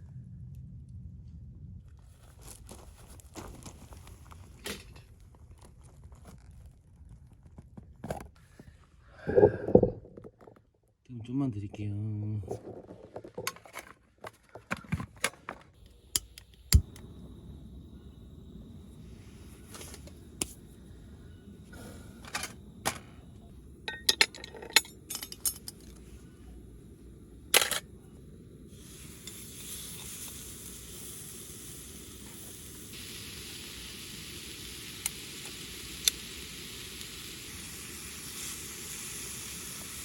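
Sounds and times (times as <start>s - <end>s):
cookware and utensils clicking: 23.9s - 26.0s
food sizzling in a pan: 28.6s - 40.0s.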